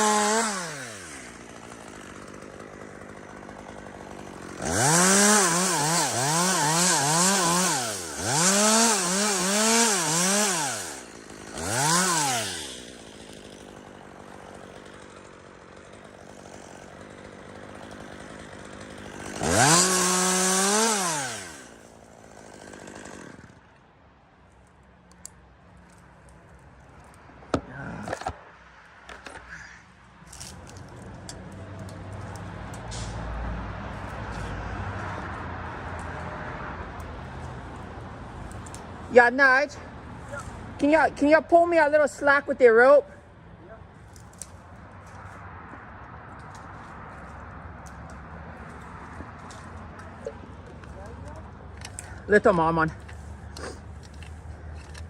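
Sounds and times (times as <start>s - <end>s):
chainsaw cutting wood: 0.0s - 23.8s, 44.1s - 55.0s.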